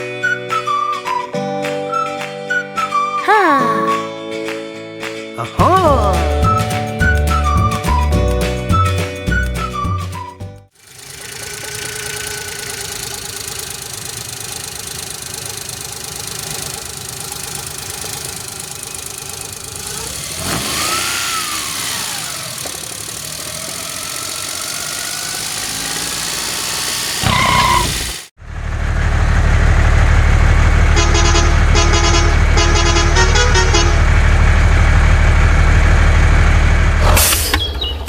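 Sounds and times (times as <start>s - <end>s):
engine running: 10.7s - 38.0s.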